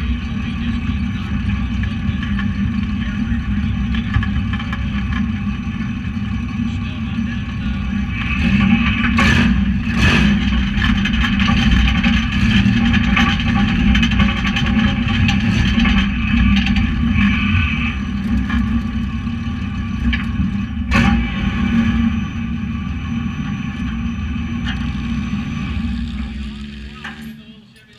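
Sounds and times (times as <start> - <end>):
truck engine running hard: 0.0 - 27.9.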